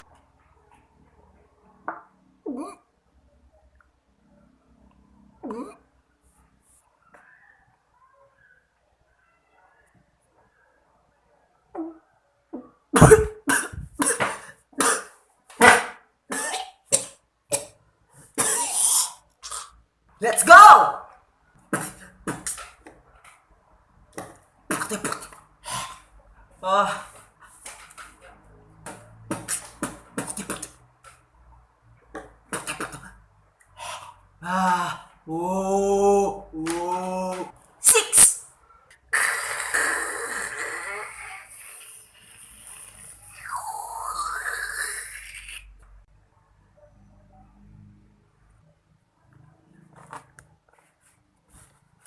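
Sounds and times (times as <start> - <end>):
held pitched vocal tone: 18.6 - 21.1, 34.4 - 38.5, 39.1 - 45.8
beatboxing mouth percussion: 21.7 - 22.7, 29.3 - 30.8, 32.2 - 33.2, 39.1 - 45.8.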